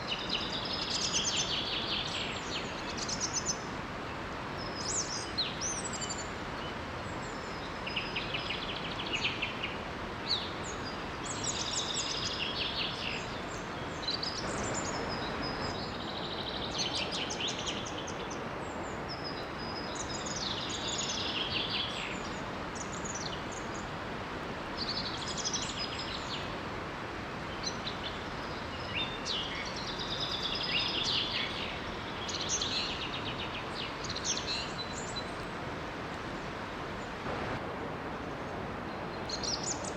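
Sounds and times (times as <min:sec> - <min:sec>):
small waterfall rushing: 0:00.0 - 0:39.9
songbirds chattering: 0:10.8 - 0:23.9.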